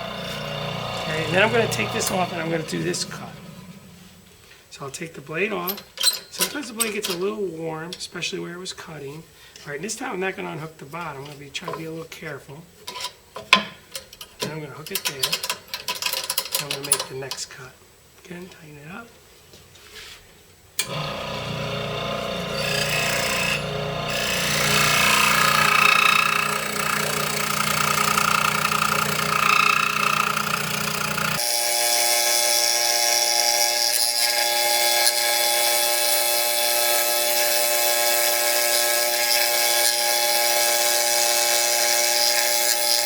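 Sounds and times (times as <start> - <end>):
saw blade rasping: 0.0 - 4.3, 20.8 - 43.0
scroll saw motor humming: 0.0 - 4.4, 20.8 - 43.0.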